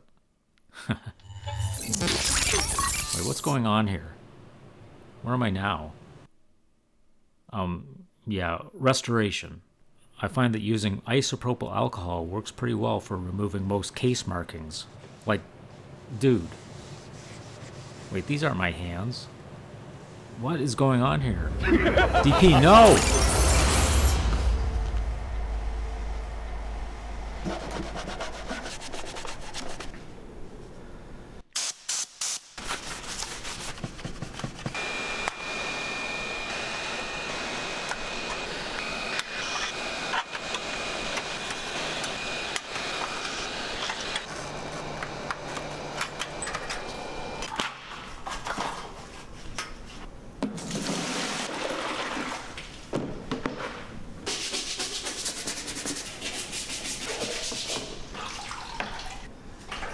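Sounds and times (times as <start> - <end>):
faint high whine: 20.8 - 29.3.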